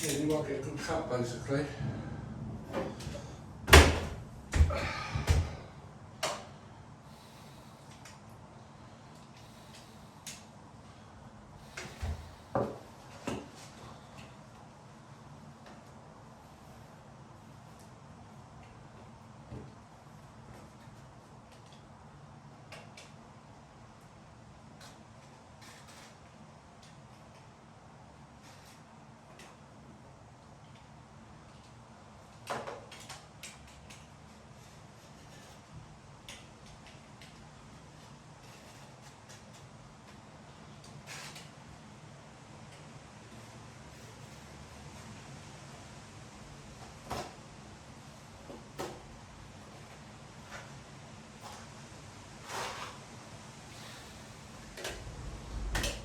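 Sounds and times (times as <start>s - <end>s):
low steady hum: 0.0s - 12.5s, 53.7s - 56.0s.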